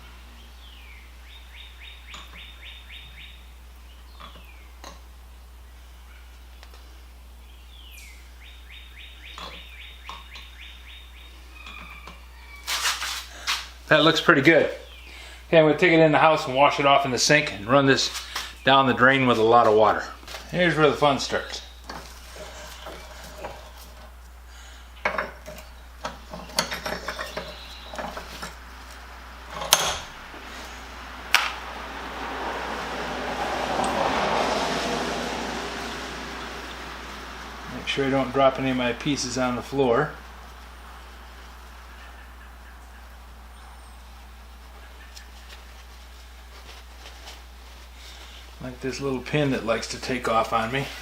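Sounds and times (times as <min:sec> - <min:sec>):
steady low hum: 0:00.0 - 0:51.0
bird singing whistle and trill: 0:07.5 - 0:12.6
metal clamps clinking and knocking: 0:25.0 - 0:28.6, 0:29.5 - 0:30.1.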